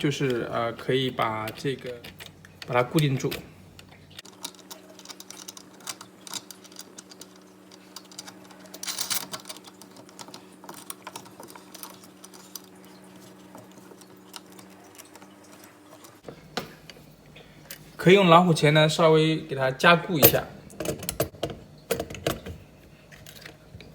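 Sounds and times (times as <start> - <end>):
steady low hum: 0.0 - 23.9
small metal clicks and scrapes: 1.4 - 16.3.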